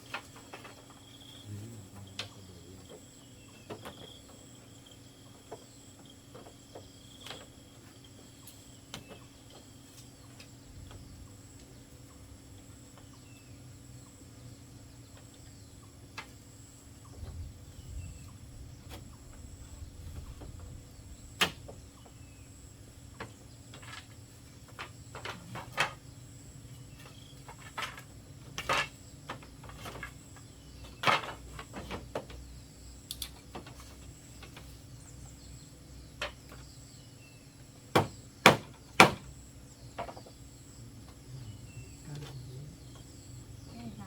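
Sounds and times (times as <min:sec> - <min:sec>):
knocks and taps on bamboo: 0:21.4 - 0:22.2, 0:23.2 - 0:26.0, 0:27.0 - 0:30.2, 0:30.8 - 0:32.4, 0:37.9 - 0:39.3, 0:40.0 - 0:40.4.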